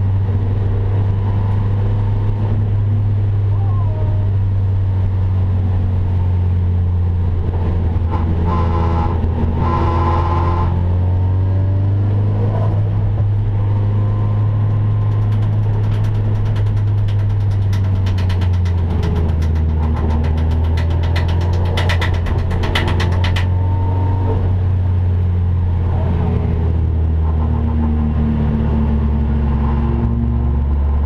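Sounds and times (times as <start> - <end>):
car engine running: 0.0 - 31.0
fast rattle of sharp ticks: 14.9 - 23.5.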